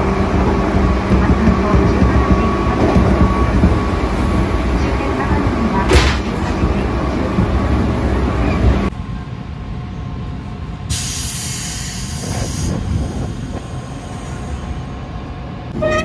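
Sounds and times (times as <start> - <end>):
standing train hum: 0.0 - 16.0
train rumbling at speed: 0.0 - 16.0
hiss: 10.9 - 14.7.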